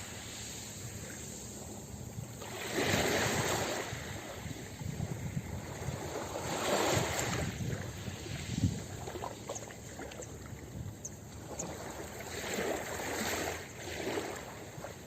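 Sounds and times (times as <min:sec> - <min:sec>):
hiss of surf washing: 0:00.0 - 0:09.4
ocean waves crashing: 0:02.4 - 0:04.5.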